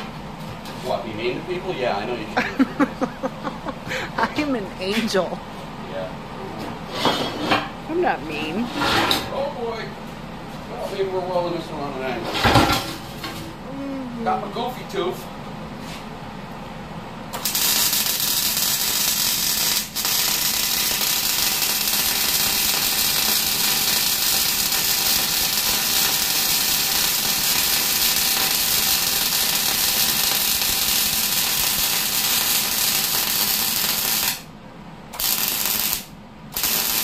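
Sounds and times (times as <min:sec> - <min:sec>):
arc welder crackling hiss: 0:17.3 - 0:34.5, 0:35.1 - 0:37.0.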